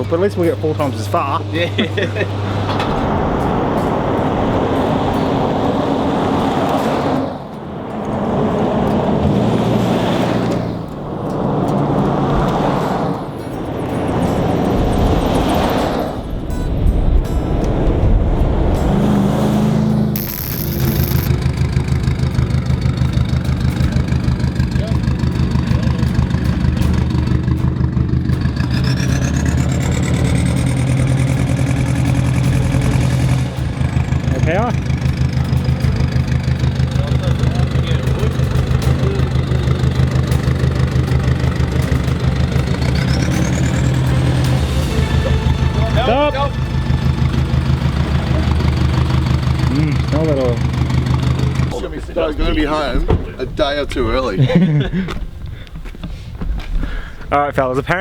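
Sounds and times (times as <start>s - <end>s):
vehicle engine pulling: 0.0s - 58.0s
high whine rising in pitch: 16.2s - 21.3s.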